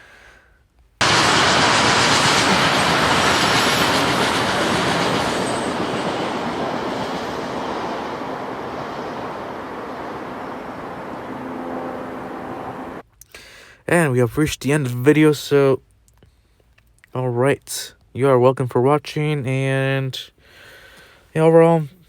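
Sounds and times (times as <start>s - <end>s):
freight train rolling past: 1.0s - 13.0s.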